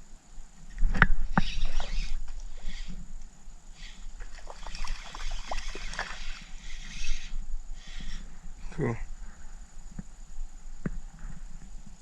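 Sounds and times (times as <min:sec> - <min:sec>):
faint water sounds: 0:01.2 - 0:09.1
steady low rumble: 0:02.1 - 0:04.3, 0:06.4 - 0:12.0.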